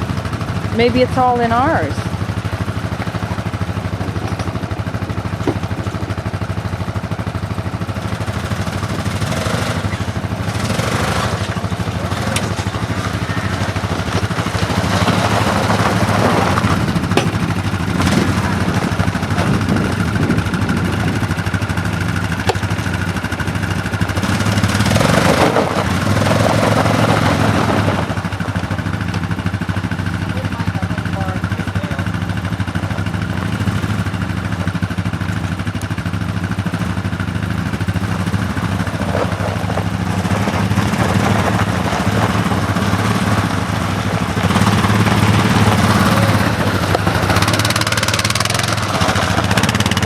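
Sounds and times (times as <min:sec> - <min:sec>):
atv engine running: 0:00.0 - 0:50.0.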